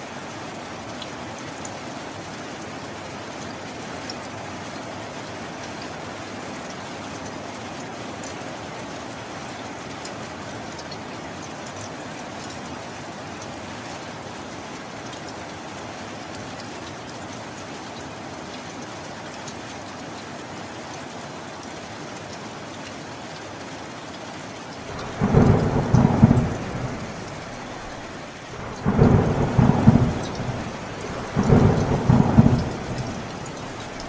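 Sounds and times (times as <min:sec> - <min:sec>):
steady rain falling: 0:00.0 - 0:34.0
thunder rumbling: 0:24.9 - 0:34.0.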